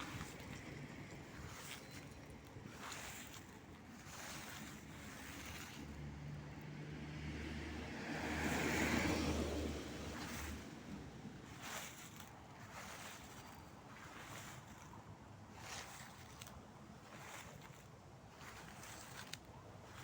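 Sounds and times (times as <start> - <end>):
dry leaves rustling: 0.0 - 6.5, 7.7 - 20.0
car passing by: 2.7 - 14.7.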